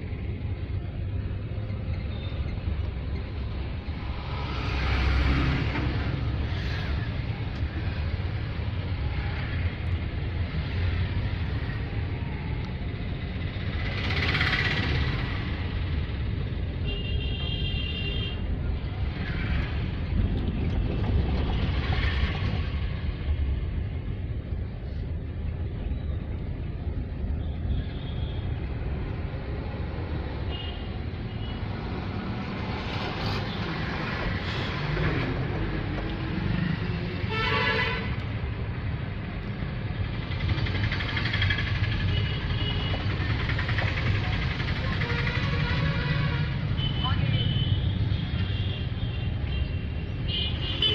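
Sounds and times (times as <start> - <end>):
road rumble: 0.0 - 50.9.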